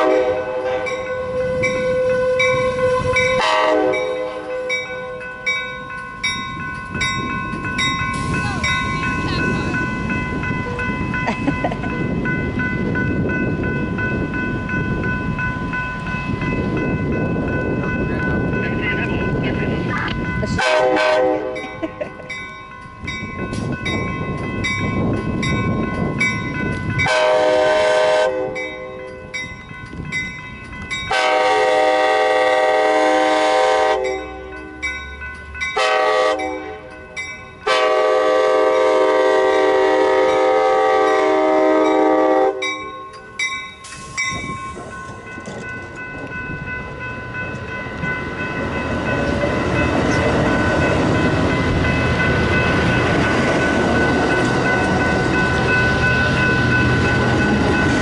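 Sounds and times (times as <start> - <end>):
train horn: 0.0 - 5.2, 20.6 - 21.7, 27.0 - 28.7, 31.1 - 34.5, 35.8 - 36.9, 37.6 - 42.8
crossing signal bell ringing: 0.0 - 58.0
train wheels rumbling on rails: 0.0 - 58.0.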